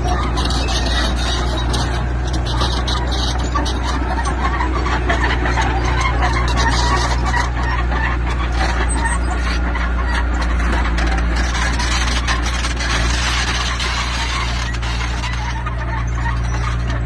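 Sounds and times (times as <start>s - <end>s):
heavy machinery diesel engine running: 0.0s - 17.0s.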